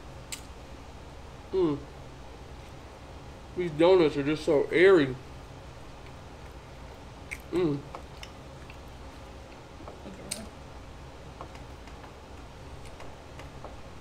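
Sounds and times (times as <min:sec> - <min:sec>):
man humming mm: 0:01.5 - 0:01.9, 0:07.5 - 0:08.0
man chewing: 0:06.0 - 0:10.0
wet mouth clicks: 0:07.3 - 0:08.8.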